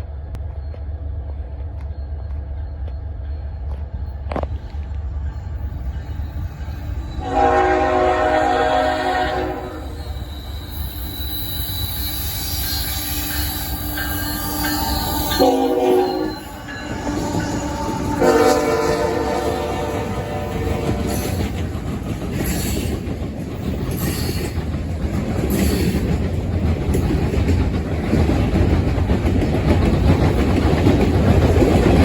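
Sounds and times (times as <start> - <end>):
train rumbling: 0.0 - 32.0
locomotive horn blasts: 7.2 - 10.1, 14.0 - 21.4.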